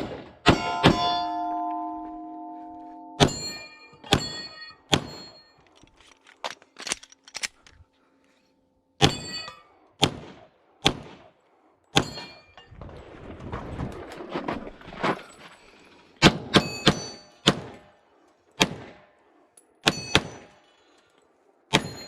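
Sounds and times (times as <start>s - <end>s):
pistol shots: 0.0s - 1.3s, 10.0s - 11.3s, 16.2s - 17.9s
steel plates ringing: 0.5s - 5.8s, 9.0s - 9.8s, 11.9s - 12.7s, 16.6s - 17.4s.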